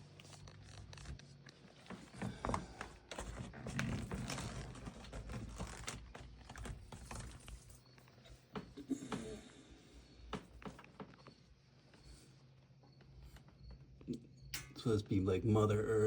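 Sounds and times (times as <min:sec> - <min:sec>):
handling clicks and rustles: 0:00.0 - 0:08.8
faint low hum: 0:00.0 - 0:16.0.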